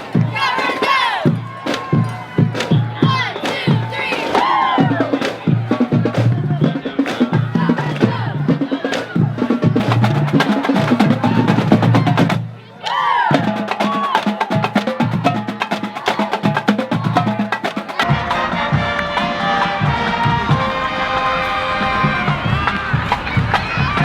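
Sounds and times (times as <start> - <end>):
music with fast drums: 0.0 - 12.6, 13.3 - 24.0.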